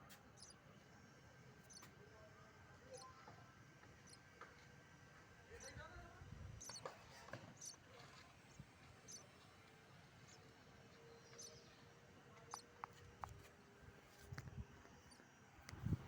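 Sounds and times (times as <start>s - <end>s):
nestling birds cheeping: 0.4s - 0.6s, 6.6s - 6.9s, 7.6s - 7.8s, 10.2s - 12.8s.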